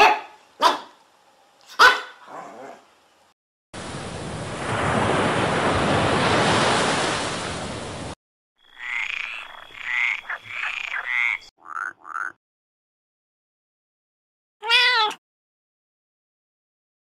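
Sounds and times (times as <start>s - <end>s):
sea water rushing: 3.8s - 8.2s
frog croaking: 8.6s - 12.4s.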